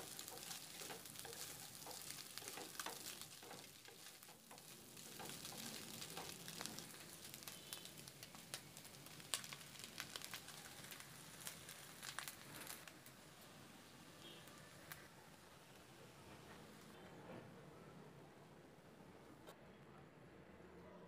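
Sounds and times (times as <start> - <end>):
oil popping: 0.0 - 13.4
food sizzling in hot oil: 0.0 - 15.8.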